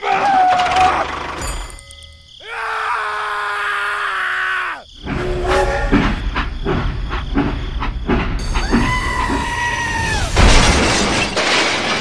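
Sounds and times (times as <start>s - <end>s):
rumbling clatter of knocks: 5.9s - 9.5s, 10.2s - 12.0s.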